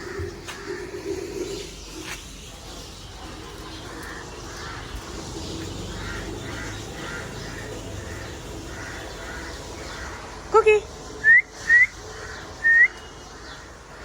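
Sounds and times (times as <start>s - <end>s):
bird calling: 3.8s - 14.0s.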